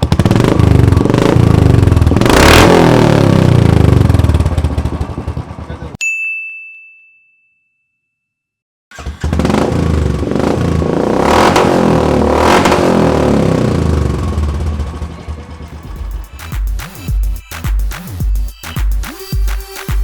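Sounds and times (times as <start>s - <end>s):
motorcycle engine revving: 0.0s - 6.0s, 8.9s - 17.2s.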